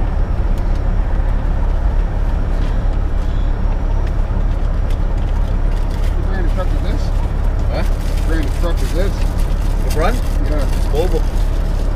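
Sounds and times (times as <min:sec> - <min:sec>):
diesel engine idling: 0:00.0 - 0:11.9.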